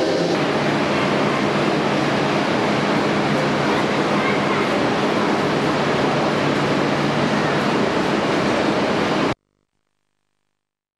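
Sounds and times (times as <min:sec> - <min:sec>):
train rushing past: 0:00.0 - 0:09.4.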